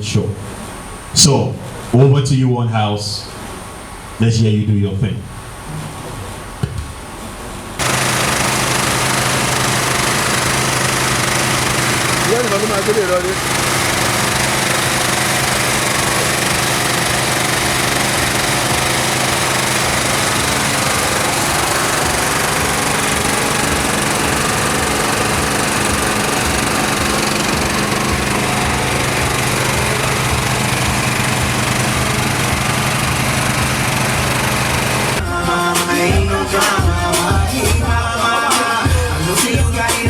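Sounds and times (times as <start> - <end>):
small engine running: 7.8 - 35.2.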